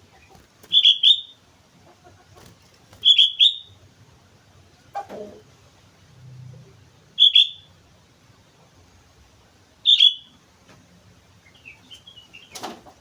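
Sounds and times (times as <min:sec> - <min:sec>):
bulbul calling: 0:00.0 - 0:01.4, 0:03.0 - 0:03.8, 0:07.2 - 0:07.7, 0:09.8 - 0:10.3.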